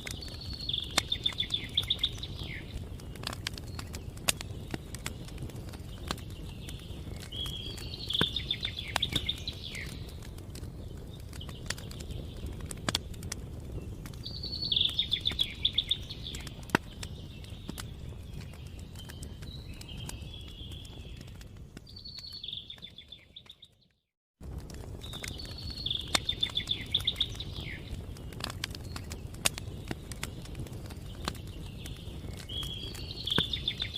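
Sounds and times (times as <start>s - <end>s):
songbird trilling: 0.2s - 2.8s, 7.3s - 10.0s, 14.3s - 16.5s, 25.7s - 27.9s.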